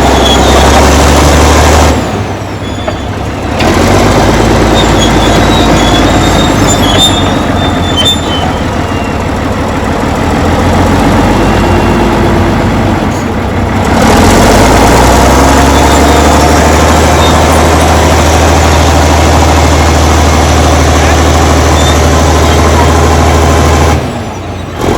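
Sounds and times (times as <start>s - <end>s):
high-pitched squeals: 0.0s - 1.2s, 2.2s - 3.6s, 4.2s - 9.4s, 14.4s - 19.8s, 20.7s - 23.0s
bulldozer diesel engine: 0.0s - 24.9s.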